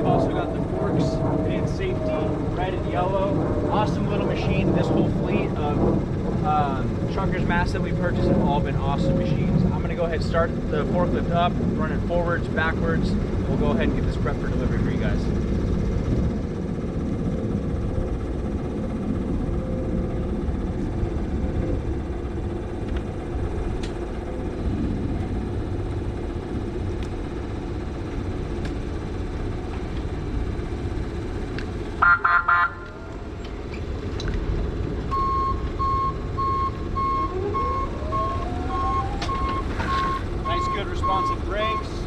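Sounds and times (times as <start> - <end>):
forklift low rumble: 0.0 - 42.0
horn honks: 32.0 - 32.9
electric motor whine: 32.8 - 41.6
reversing alarm beeps: 35.1 - 42.0.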